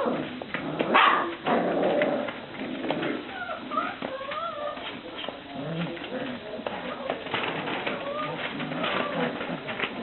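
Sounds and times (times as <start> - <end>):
puppy whines: 3.0 - 5.3, 7.8 - 9.6
puppies whimpering: 3.0 - 9.9.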